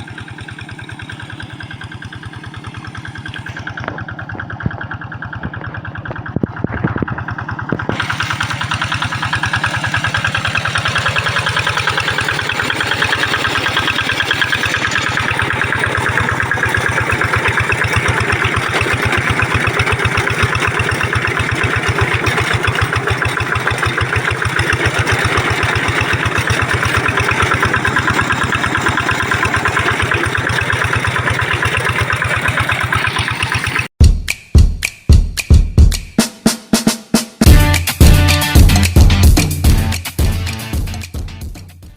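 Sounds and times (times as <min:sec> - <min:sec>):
tractor engine running: 0:00.0 - 0:34.4, 0:37.4 - 0:41.9
drum kit music: 0:34.0 - 0:41.9.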